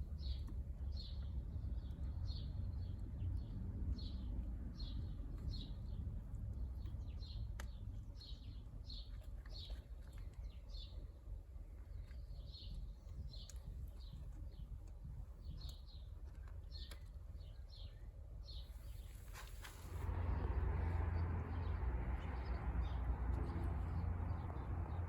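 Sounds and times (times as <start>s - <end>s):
steady low rumble: 18.2s - 25.0s.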